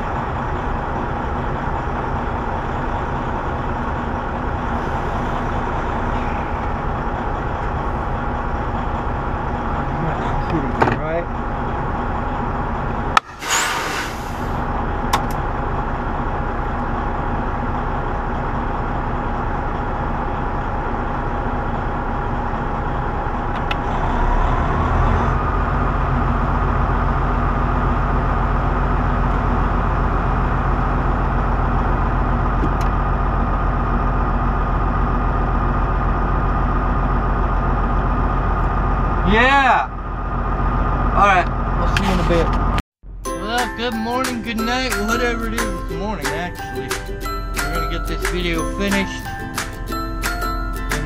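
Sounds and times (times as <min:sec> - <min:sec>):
diesel truck engine running: 0:00.0 - 0:51.0
short air hiss: 0:13.3 - 0:14.6.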